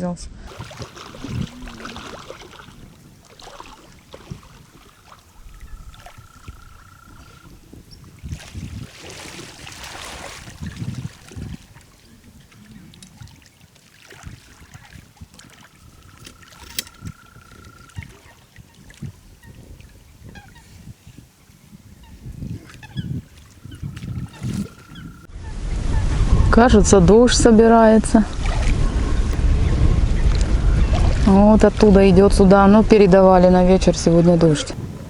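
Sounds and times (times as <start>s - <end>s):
water splashing at shore: 0.5s - 21.0s, 22.0s - 25.3s, 28.2s - 28.9s.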